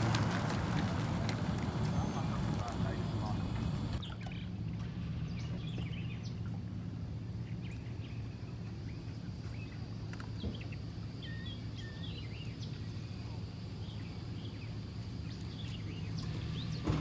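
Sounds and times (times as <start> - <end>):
songbirds chirping and whistling: 0.7 - 17.0
steady low hum: 1.5 - 16.8.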